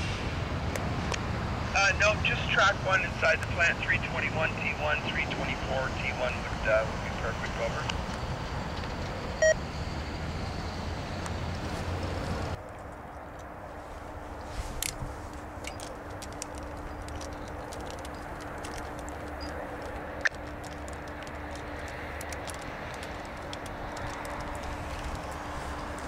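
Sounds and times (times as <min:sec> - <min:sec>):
distant diesel train rumble: 0:00.0 - 0:26.0
steady low hum: 0:00.0 - 0:26.0
faint clicks: 0:15.6 - 0:26.0.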